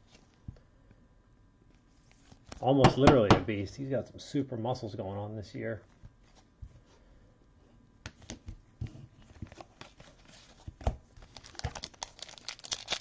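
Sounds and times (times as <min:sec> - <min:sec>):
foil wrappers crinkling: 0:11.2 - 0:13.0.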